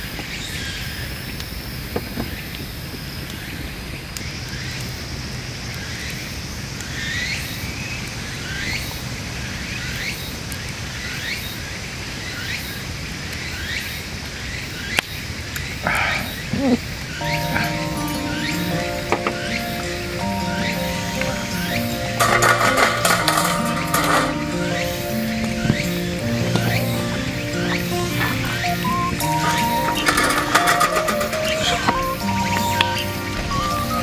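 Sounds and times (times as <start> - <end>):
bird chirping: 16.0 - 34.0.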